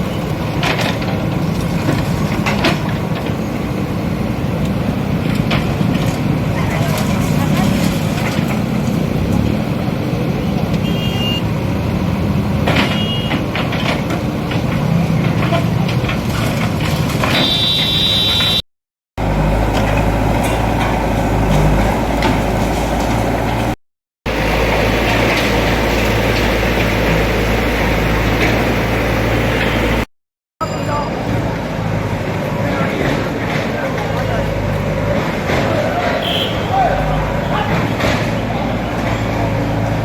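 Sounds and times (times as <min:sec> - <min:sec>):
street noise: 0:00.0 - 0:18.6, 0:19.2 - 0:40.0
diesel engine running: 0:19.2 - 0:30.1.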